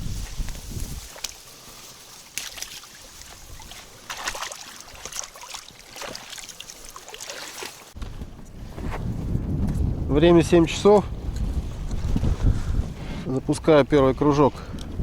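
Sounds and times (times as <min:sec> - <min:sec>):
short splashes or rustles: 0:00.0 - 0:08.0
water lapping against boat: 0:01.1 - 0:08.0.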